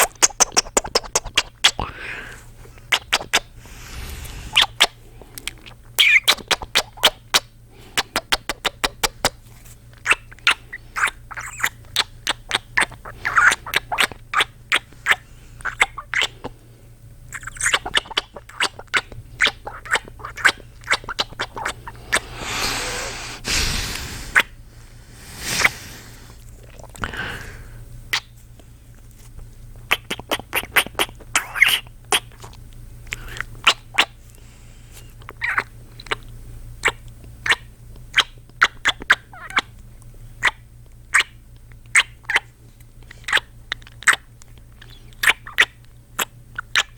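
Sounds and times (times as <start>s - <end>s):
man making kissing sounds: 0.0s - 1.9s, 2.8s - 3.5s, 4.5s - 9.4s
man breathing: 3.6s - 5.4s, 21.9s - 27.9s.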